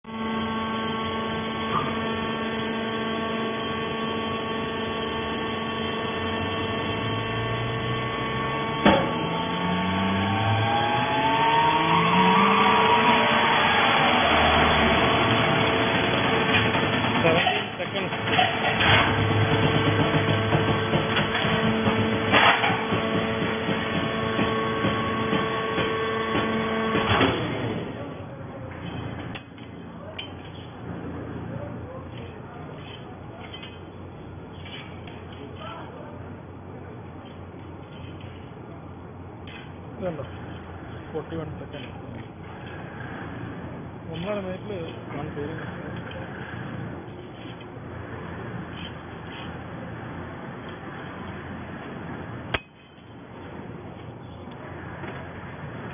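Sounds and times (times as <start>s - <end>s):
baling press machine hum: 0.0s - 55.9s
rising tones: 0.3s - 17.2s
machine clatter: 13.6s - 27.8s
sharp metal clank: 52.5s - 53.2s.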